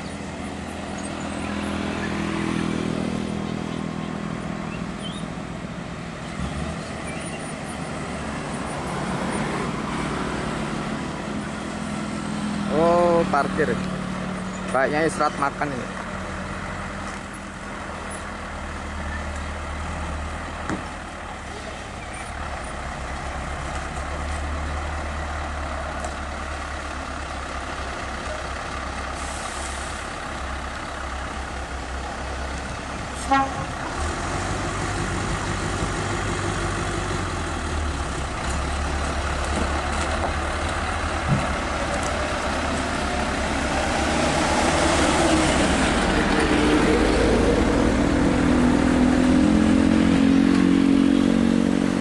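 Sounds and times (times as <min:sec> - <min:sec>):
heavy truck engine running: 0:00.0 - 0:52.0
horn toot: 0:33.2 - 0:33.7.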